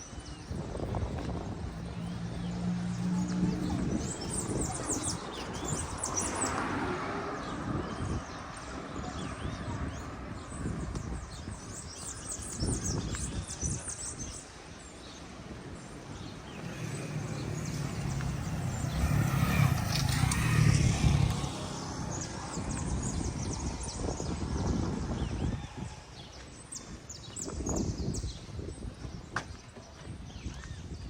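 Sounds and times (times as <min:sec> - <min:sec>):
birds chirping: 0:00.0 - 0:25.6
motor vehicle passing: 0:01.3 - 0:09.8, 0:15.3 - 0:24.7.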